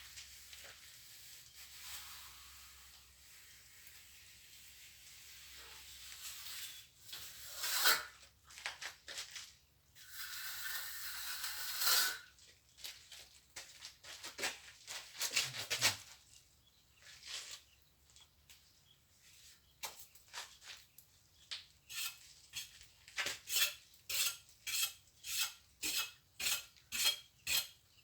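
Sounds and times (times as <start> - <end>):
trowel scraping mortar: 1.6 - 8.2, 10.0 - 12.3, 21.9 - 27.8.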